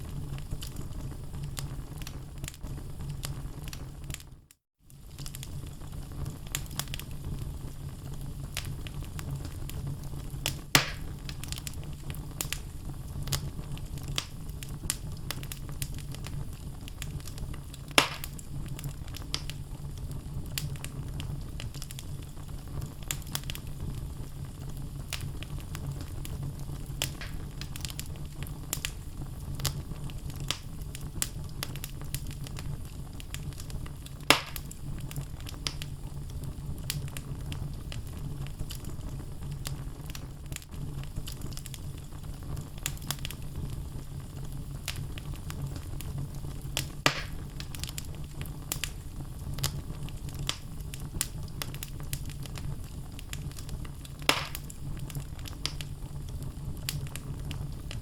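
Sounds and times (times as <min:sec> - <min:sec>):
low rumble of flames: 0:00.0 - 0:58.0
loud fire pops: 0:04.9 - 0:58.0
logs crackling: 0:10.4 - 0:19.6, 0:24.7 - 0:29.0, 0:33.3 - 0:35.9, 0:46.7 - 0:49.0, 0:53.2 - 0:55.8.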